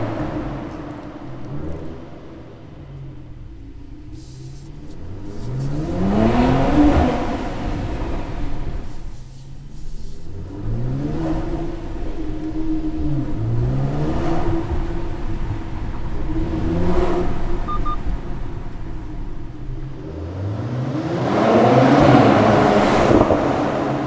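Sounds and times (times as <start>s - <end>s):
car engine revving in car park: 0.0s - 24.0s.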